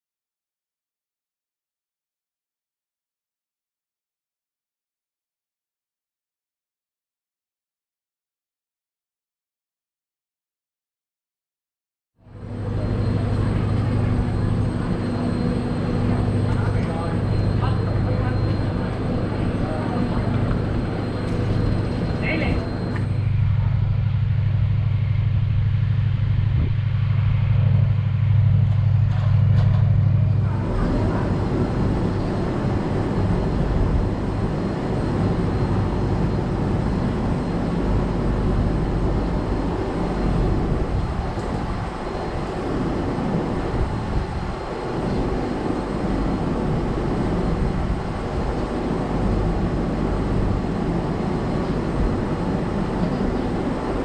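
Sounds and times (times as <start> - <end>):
deep steady hum: 12.2 - 54.0
train rumbling: 12.2 - 54.0.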